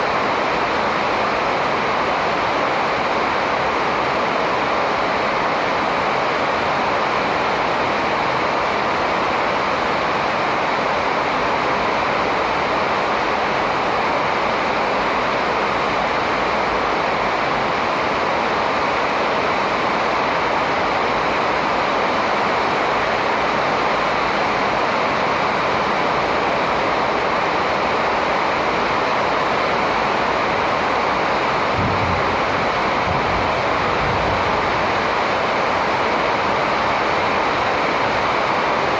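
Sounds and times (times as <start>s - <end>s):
steady rushing noise: 28.2s - 38.9s
low thumps: 31.7s - 35.8s.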